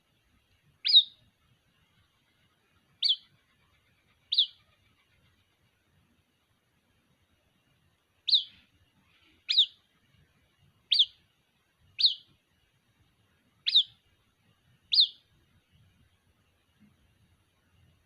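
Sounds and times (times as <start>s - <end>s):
bird chick peeping: 0.8s - 1.3s, 2.0s - 5.7s, 8.2s - 9.9s, 10.8s - 11.3s, 11.9s - 12.4s, 13.6s - 14.0s, 14.8s - 15.4s.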